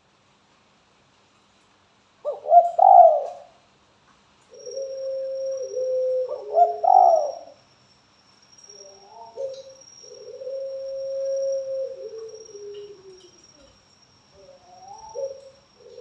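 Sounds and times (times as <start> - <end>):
dove cooing: 2.2 - 3.6, 4.5 - 7.6, 8.8 - 13.8, 14.4 - 16.0.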